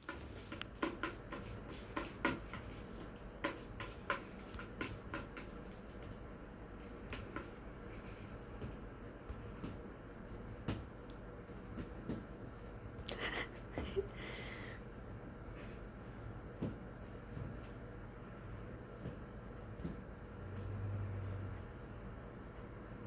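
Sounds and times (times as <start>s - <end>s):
kittens knocking and rattling: 0.0s - 8.8s
steady low hum: 0.0s - 23.0s.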